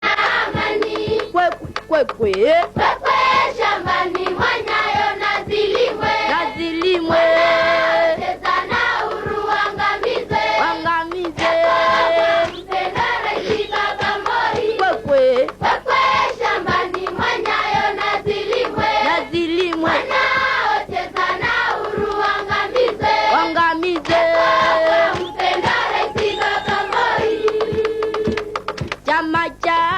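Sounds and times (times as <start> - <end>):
choir singing: 0.0 - 1.4, 2.8 - 28.6.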